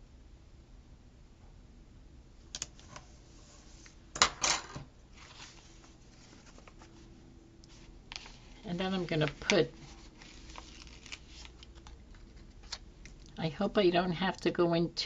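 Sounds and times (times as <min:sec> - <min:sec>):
paper rustle: 0:05.1 - 0:13.2.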